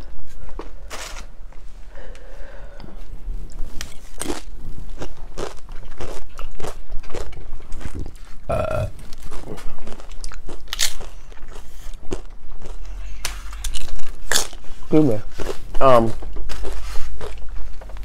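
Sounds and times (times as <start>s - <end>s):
tortilla chips crunching: 3.8s - 18.0s
person humming: 8.5s - 9.0s.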